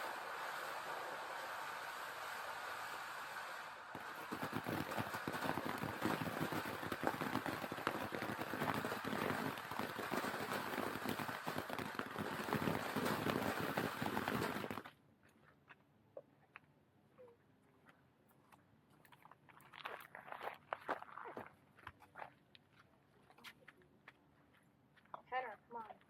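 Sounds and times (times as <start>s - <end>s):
firework hissing and crackling: 0.0s - 14.9s.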